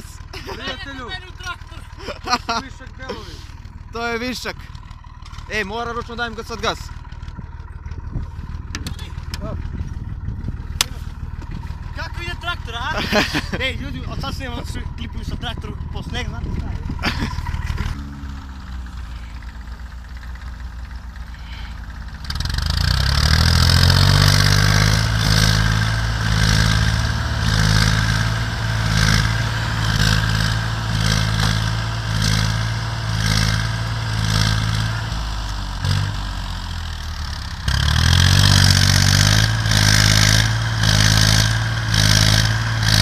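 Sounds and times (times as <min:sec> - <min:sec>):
wheels spinning in snow: 0:02.2 - 0:43.0
car engine revving hard: 0:22.2 - 0:36.6, 0:37.6 - 0:43.0.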